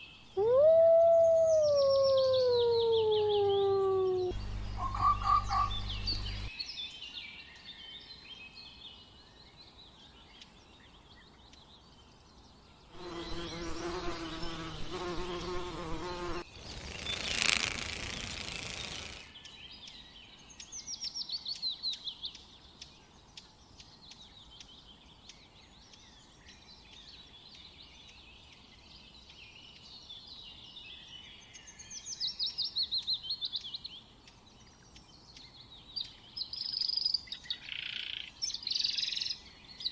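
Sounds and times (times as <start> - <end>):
small birds chirping: 0.0 - 39.9
loud animal call: 0.4 - 6.5.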